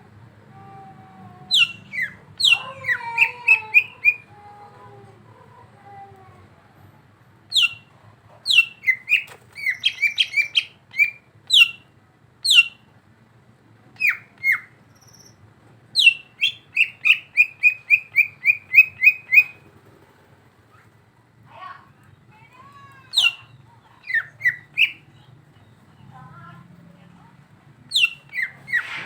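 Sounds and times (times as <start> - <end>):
bird calling sharp sliding notes: 28.0 - 29.0.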